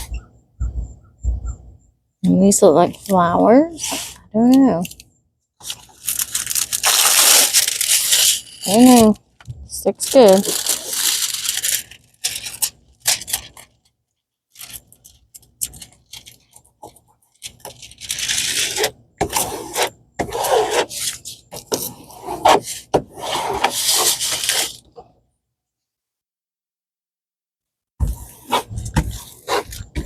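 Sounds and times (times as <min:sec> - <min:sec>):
plastic film crinkling and rustling: 0:05.6 - 0:09.4, 0:10.0 - 0:13.8.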